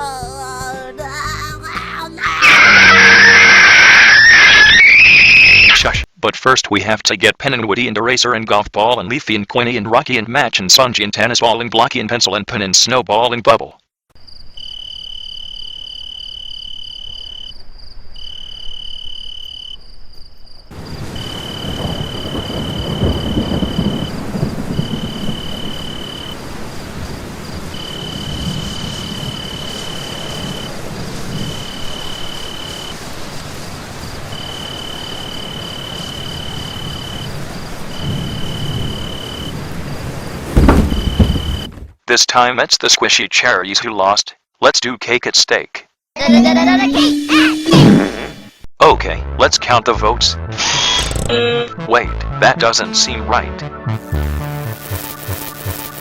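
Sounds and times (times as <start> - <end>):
insects trilling: 2.4 - 5.8, 14.2 - 41.7
low thunder rumbling: 20.7 - 32.0, 36.5 - 41.7
steady rain: 20.7 - 41.4.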